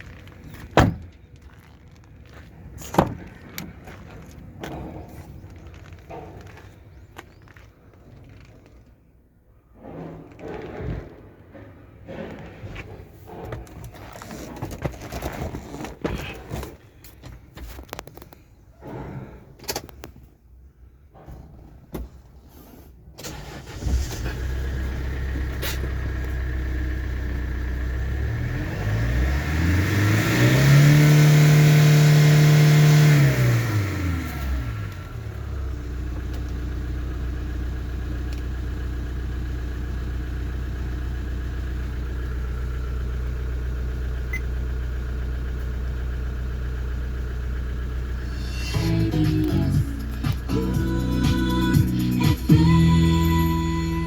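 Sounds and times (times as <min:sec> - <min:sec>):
diesel engine starting and idling: 0:22.5 - 0:54.0
engine revving: 0:27.0 - 0:35.7, 0:48.1 - 0:54.0.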